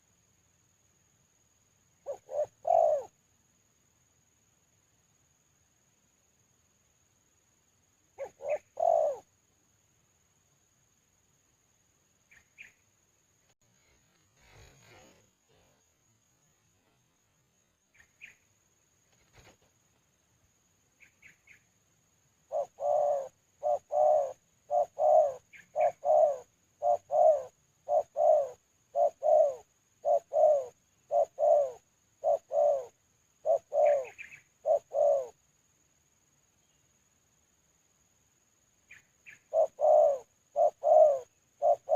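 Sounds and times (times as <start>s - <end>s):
small bird chirping: 1.9s - 3.2s, 8.1s - 9.3s, 12.1s - 37.4s, 38.6s - 41.9s
dove cooing: 2.0s - 3.2s, 8.2s - 9.3s, 22.5s - 35.4s, 39.2s - 41.9s.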